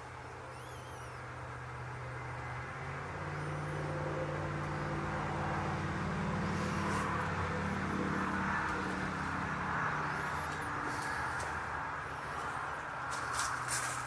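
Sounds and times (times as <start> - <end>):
vehicle passing on road: 0.0 - 14.0
bird chirping: 0.4 - 1.3.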